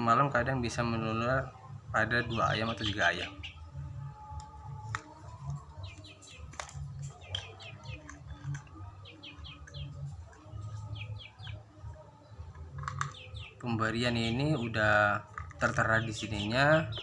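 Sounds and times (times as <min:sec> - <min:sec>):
small bird chirping: 0:02.2 - 0:04.3, 0:05.5 - 0:17.0.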